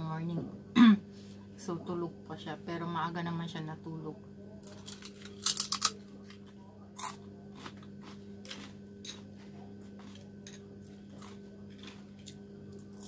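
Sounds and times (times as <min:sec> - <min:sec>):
steady low hum: 0:00.0 - 0:13.0
soft chewing: 0:04.6 - 0:13.0.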